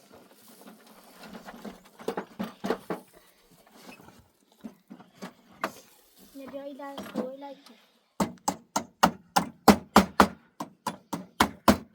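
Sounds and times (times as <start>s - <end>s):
irregular knocks and taps: 8.2s - 11.9s.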